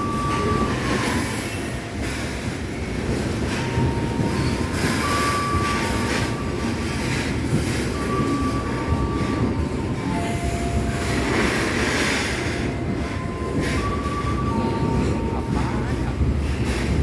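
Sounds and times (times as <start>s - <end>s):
high wheel squeals: 0.0s - 2.3s
train wagons rumbling on rails: 0.0s - 17.0s.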